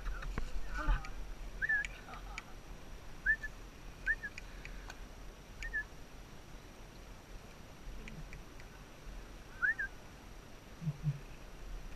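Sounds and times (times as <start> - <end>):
bird chirping: 1.6 - 2.1, 3.2 - 4.5, 5.6 - 5.9
faint clicks: 4.0 - 5.0.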